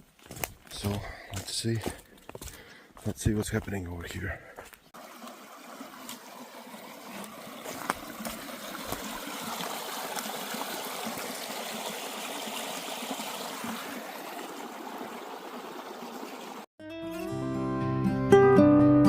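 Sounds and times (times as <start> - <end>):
shallow water trickling: 4.8 - 16.7.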